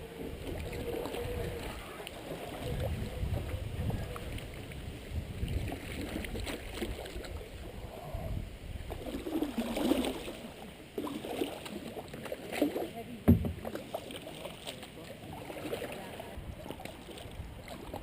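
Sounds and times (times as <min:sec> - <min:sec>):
wind rumble on microphone: 0:00.0 - 0:10.0, 0:16.2 - 0:18.0
paddle strokes in water: 0:00.0 - 0:18.0.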